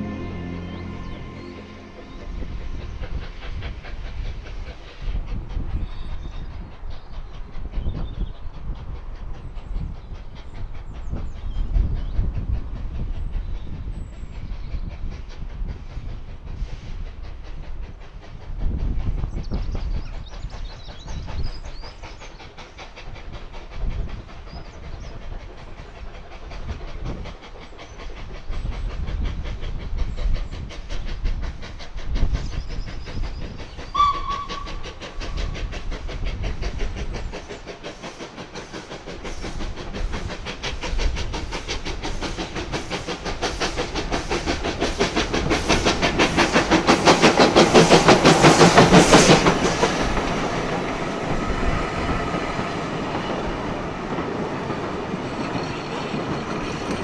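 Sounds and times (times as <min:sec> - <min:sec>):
train whistle: 0:00.0 - 0:02.2, 0:33.9 - 0:34.9
steam blowing from cylinders: 0:00.0 - 0:57.0
steam locomotive rumble: 0:00.0 - 0:57.0.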